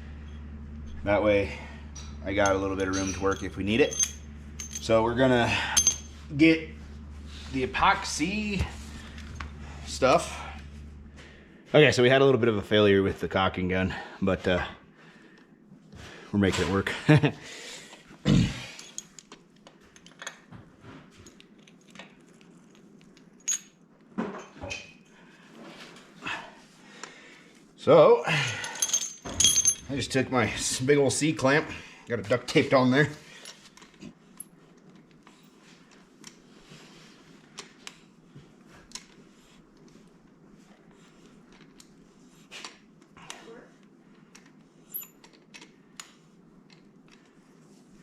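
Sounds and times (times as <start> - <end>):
tools and parts clicking: 2.0 - 5.0, 18.7 - 20.5, 44.1 - 47.2.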